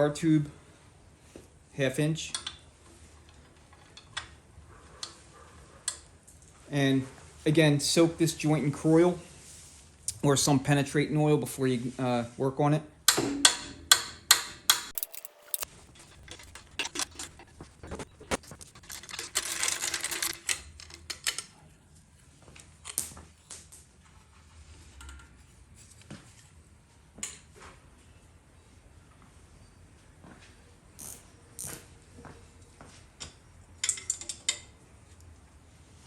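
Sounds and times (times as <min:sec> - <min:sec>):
hand tools clicking on metal: 0:14.7 - 0:21.4.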